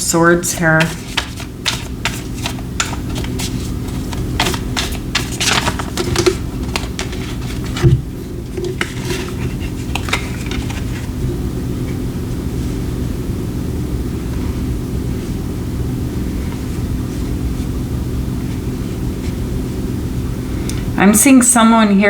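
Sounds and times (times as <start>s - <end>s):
steady low hum: 0.0s - 22.0s
cards clicking and tapping: 0.5s - 8.0s, 8.6s - 11.1s.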